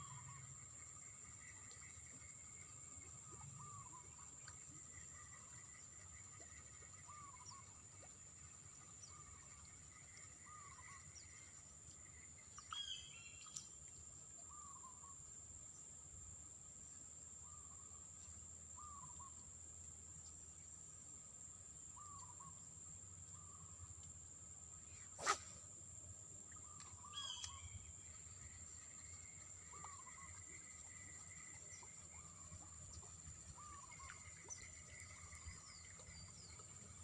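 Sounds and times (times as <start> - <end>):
bright sliding bird call: 25.2 - 25.7.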